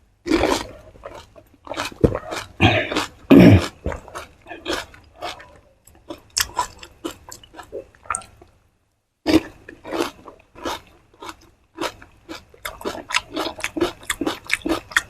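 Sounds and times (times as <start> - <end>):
wet chewing: 9.3 - 15.0.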